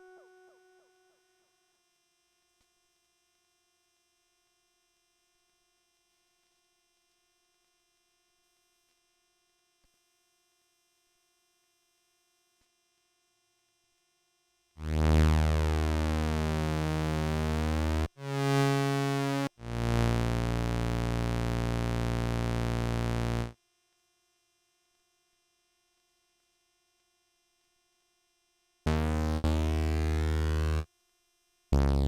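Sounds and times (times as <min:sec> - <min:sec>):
synthesizer notes: 0:00.0 - 0:01.0.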